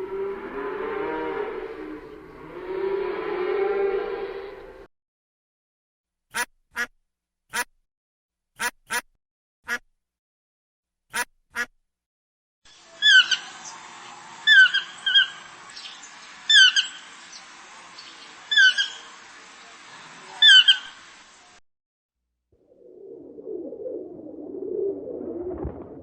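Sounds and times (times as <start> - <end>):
duck quacks: 6.3 - 6.9, 8.6 - 9.1, 11.1 - 11.7
bird squawking: 13.0 - 13.7, 14.4 - 17.1, 18.1 - 19.1, 20.4 - 21.0.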